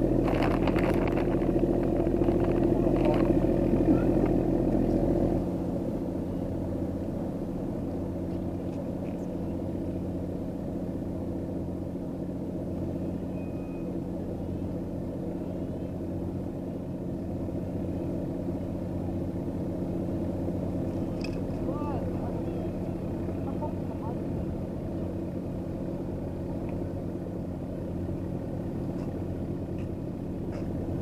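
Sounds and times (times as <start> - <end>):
low engine hum: 0.0 - 31.0.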